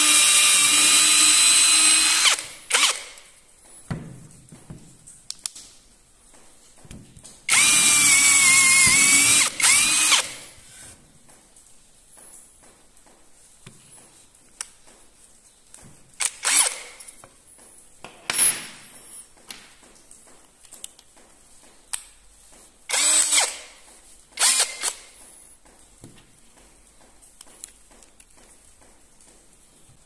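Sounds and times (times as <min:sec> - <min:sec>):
cordless drill bursts: 0:00.0 - 0:03.2, 0:07.5 - 0:10.5, 0:16.2 - 0:17.0, 0:22.9 - 0:23.7, 0:24.4 - 0:25.0.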